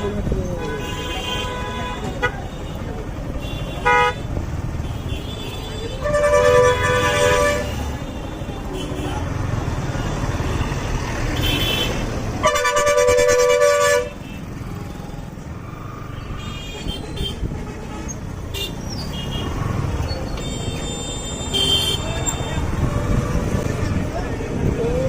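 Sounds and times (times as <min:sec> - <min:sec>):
low rumble of engines: 0:00.0 - 0:25.0
vehicle horn honking: 0:03.4 - 0:04.2, 0:04.9 - 0:09.2, 0:11.4 - 0:14.4, 0:20.4 - 0:22.6.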